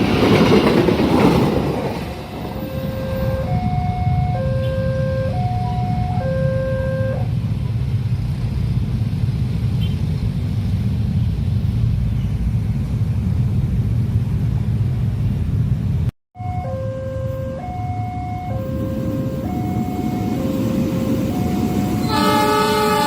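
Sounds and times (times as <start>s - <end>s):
train rumbling past: 0.0s - 16.1s, 16.8s - 23.0s
level crossing two-tone alarm: 2.6s - 7.2s, 16.4s - 22.9s.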